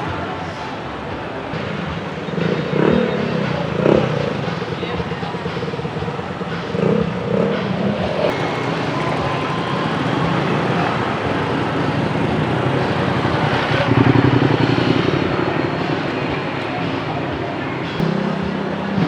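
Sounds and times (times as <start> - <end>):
car engines passing: 0.0 - 19.0
motorcycle engines passing: 0.0 - 19.0.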